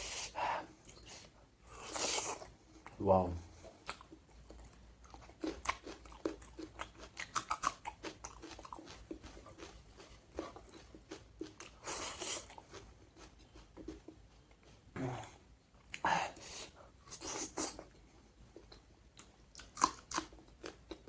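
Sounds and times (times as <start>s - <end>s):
close chewing and biting: 3.7s - 14.9s, 18.5s - 21.0s.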